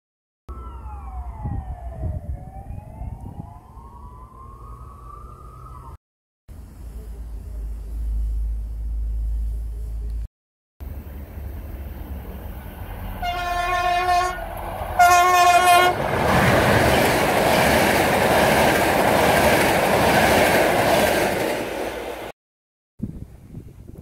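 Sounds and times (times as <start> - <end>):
train horn blasts: 13.2 - 16.0.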